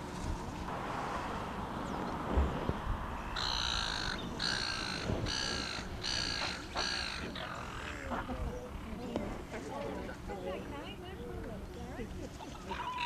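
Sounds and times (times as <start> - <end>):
bird calling: 3.1 - 9.3, 12.4 - 13.0.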